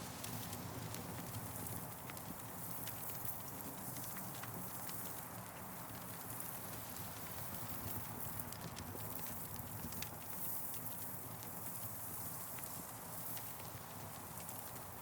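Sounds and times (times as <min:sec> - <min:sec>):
campfire burning and crackling: 0:00.0 - 0:15.0.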